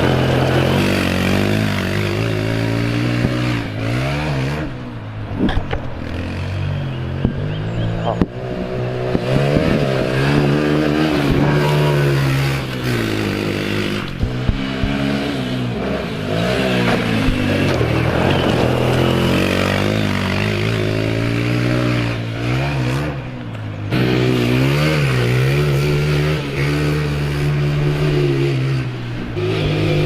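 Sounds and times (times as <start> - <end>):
quad engine revving: 0.0 - 30.0.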